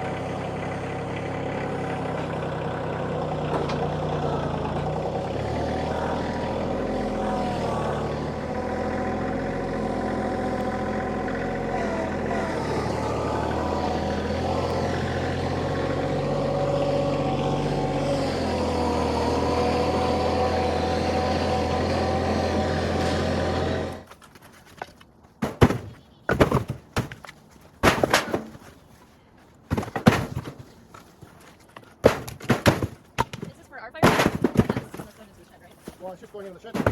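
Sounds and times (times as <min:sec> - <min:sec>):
diesel tractor engine running: 0:00.0 - 0:24.1
sharp knocks: 0:36.7 - 0:36.9.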